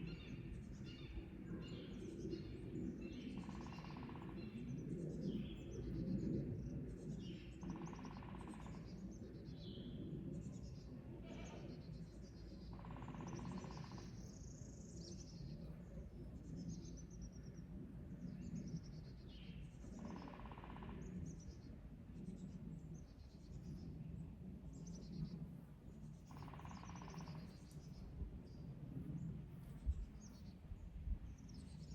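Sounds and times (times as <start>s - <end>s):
wild birds chirping: 0.0s - 31.9s
low steady rumble: 20.9s - 31.9s
rapid pulsing bird call: 26.3s - 27.7s.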